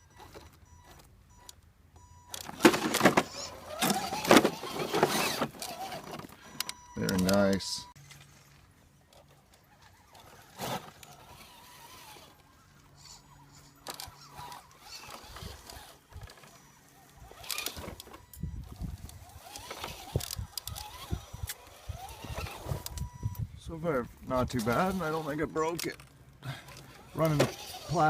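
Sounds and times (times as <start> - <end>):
small electric motor whine: 2.1 - 6.4, 9.2 - 23.2, 26.7 - 28.0.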